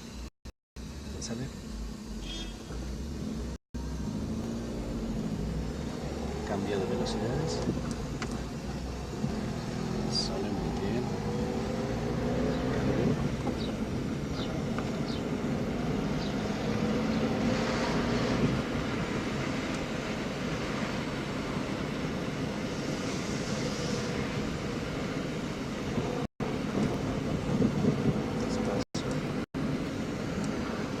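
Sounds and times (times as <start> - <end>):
road noise: 0.0 - 31.0
car engine accelerating: 1.0 - 22.6.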